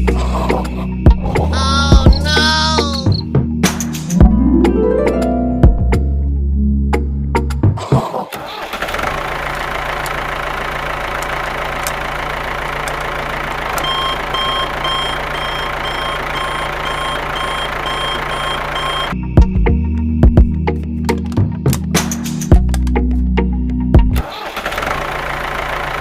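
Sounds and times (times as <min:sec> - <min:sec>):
truck engine running: 0:08.7 - 0:19.2, 0:24.5 - 0:26.0
reversing alarm beeping: 0:13.8 - 0:19.2.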